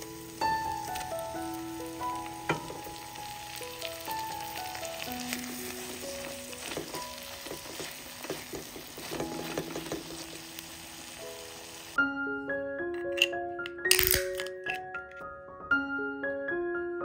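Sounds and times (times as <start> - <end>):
food sizzling in oil: 0.0 - 12.0
soft melodic music: 0.0 - 17.0.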